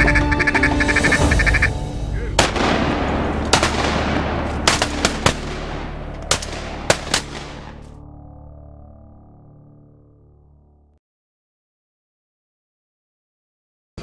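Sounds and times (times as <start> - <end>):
shotgun shots: 2.4 - 8.0.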